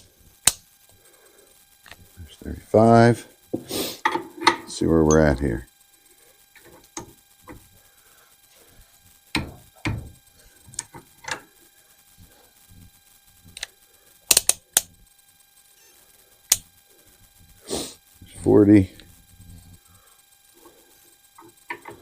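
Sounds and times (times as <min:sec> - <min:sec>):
torque wrench sharp clicks: 0:14.3 - 0:14.9.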